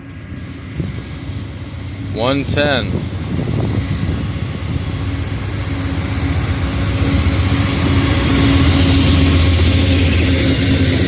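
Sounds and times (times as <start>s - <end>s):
diesel locomotive passing: 0.0s - 11.0s.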